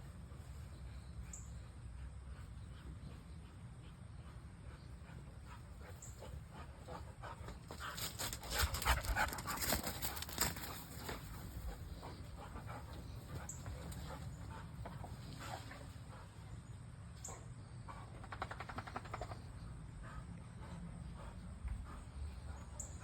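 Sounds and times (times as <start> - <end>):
dog breathing hard: 0.8 - 23.0.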